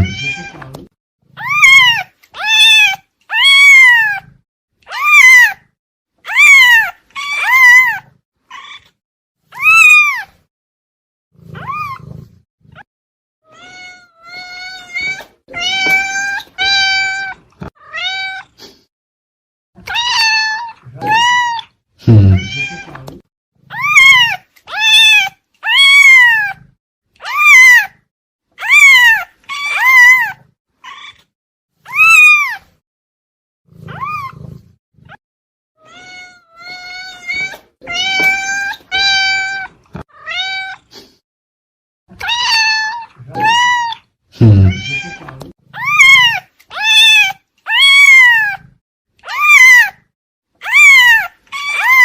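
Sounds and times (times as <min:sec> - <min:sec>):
cat meowing: 0:00.0 - 0:00.8, 0:01.4 - 0:04.3, 0:04.9 - 0:05.7, 0:06.3 - 0:09.0, 0:09.6 - 0:10.4, 0:11.6 - 0:12.2, 0:13.4 - 0:18.6, 0:19.8 - 0:23.1, 0:23.7 - 0:26.6, 0:27.2 - 0:28.0, 0:28.6 - 0:31.3, 0:31.9 - 0:32.7, 0:33.9 - 0:34.4, 0:35.8 - 0:40.9, 0:42.1 - 0:50.0, 0:50.6 - 0:52.0.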